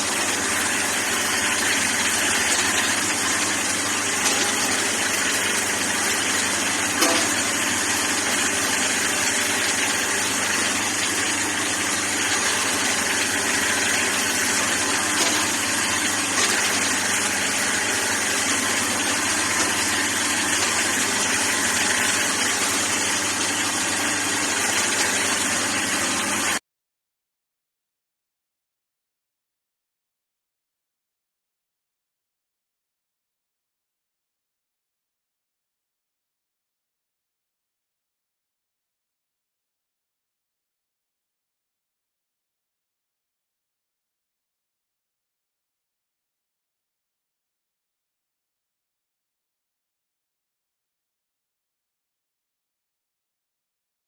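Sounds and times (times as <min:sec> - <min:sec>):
excavator engine idling: 0:00.0 - 0:26.6.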